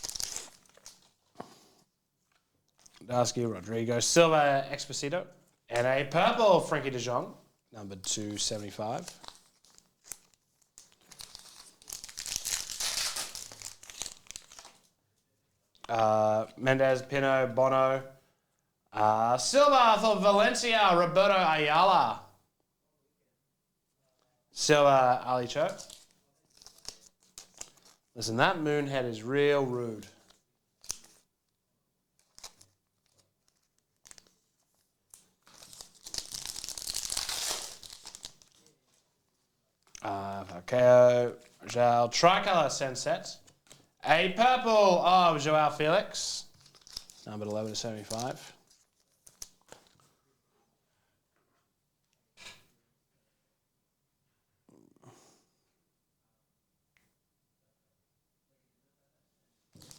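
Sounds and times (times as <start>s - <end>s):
foil pack tearing and crinkling: 0.0s - 1.1s, 9.1s - 14.8s, 35.4s - 38.6s, 46.6s - 48.3s.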